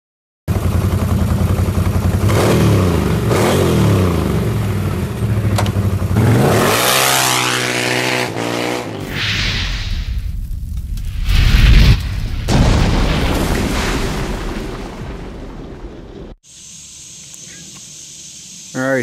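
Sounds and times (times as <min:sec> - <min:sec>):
vehicle engine revving: 0:00.6 - 0:09.0
short whoosh: 0:09.0 - 0:14.0.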